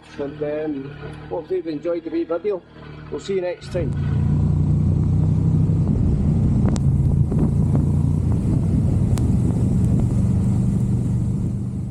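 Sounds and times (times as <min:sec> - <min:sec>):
motorcycle engine running: 0:02.9 - 0:11.9.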